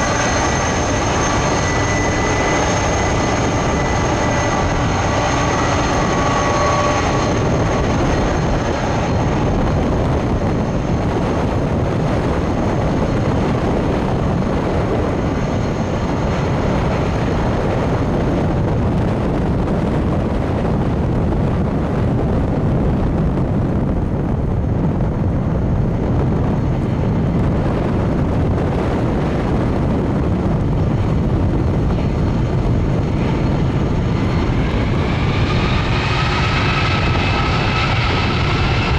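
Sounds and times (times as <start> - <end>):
faint high engine whine: 0.0 - 38.9
jet engines rumbling: 0.0 - 38.9.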